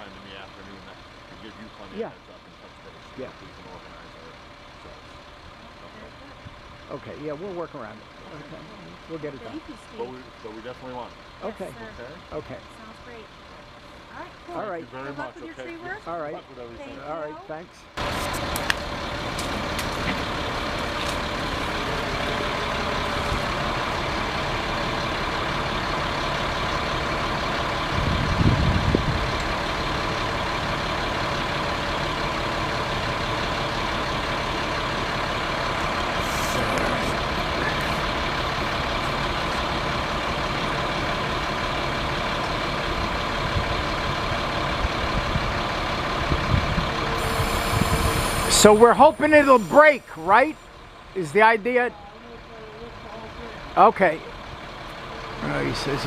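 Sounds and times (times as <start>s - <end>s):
truck engine running: 0.0s - 56.0s.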